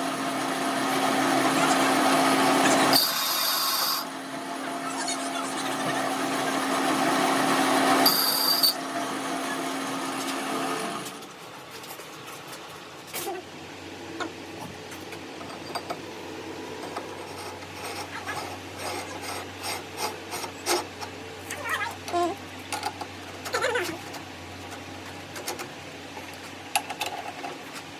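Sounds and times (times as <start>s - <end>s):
power tool rasping: 1.7s - 4.1s, 17.2s - 20.9s.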